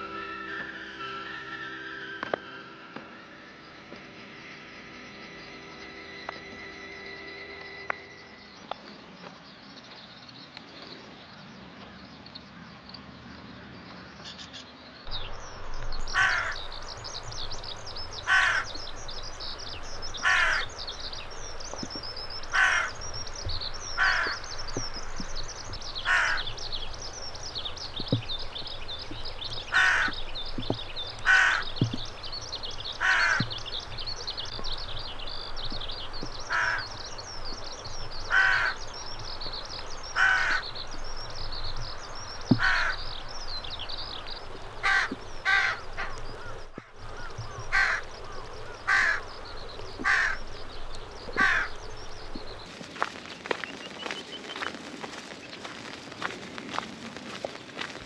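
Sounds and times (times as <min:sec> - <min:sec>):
small birds twittering: 0:15.1 - 0:52.7
crow cawing: 0:16.0 - 0:52.6.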